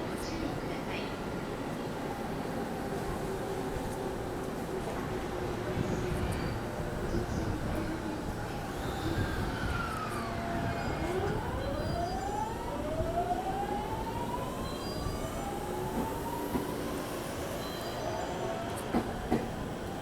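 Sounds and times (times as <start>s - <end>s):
rumble of running train: 0.0s - 20.0s.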